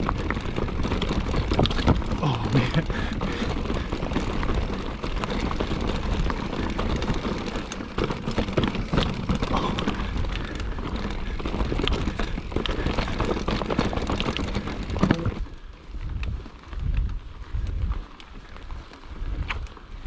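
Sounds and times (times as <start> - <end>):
bike clattering over rocks: 0.0 - 15.5.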